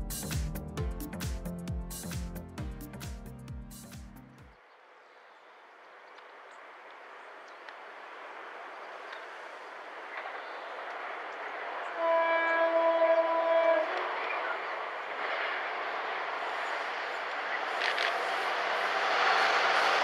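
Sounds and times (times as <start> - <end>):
diesel locomotive engine and wheels: 5.8 - 20.0
train horn: 11.8 - 14.8.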